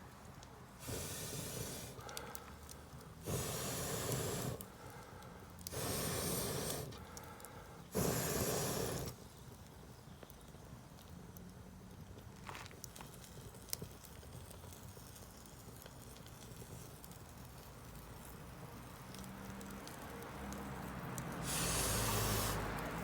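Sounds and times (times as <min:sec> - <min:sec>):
air puffs blown onto fire: 0:00.0 - 0:09.4, 0:21.2 - 0:23.0
campfire crackling: 0:00.0 - 0:23.0.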